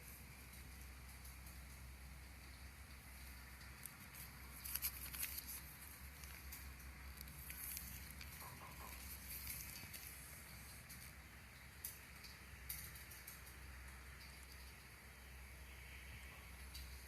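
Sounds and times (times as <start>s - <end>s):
steady low hum: 0.0s - 17.0s
plastic film crackling: 3.6s - 10.6s.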